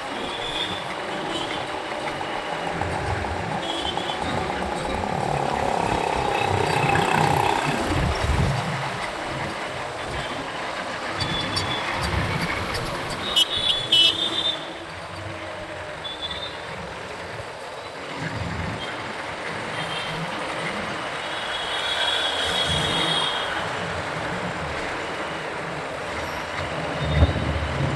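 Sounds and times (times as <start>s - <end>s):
motorbike engine and road noise: 0.0s - 27.9s
vehicle horn honks: 2.8s - 7.6s.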